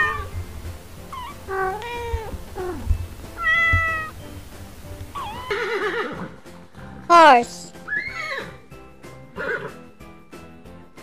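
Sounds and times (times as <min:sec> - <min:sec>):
kittens meowing: 0:00.0 - 0:00.4, 0:01.0 - 0:04.2, 0:05.1 - 0:06.3.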